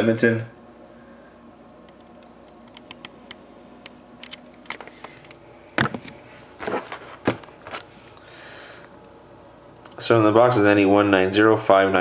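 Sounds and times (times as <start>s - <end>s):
handling noise: 4.2s - 8.2s.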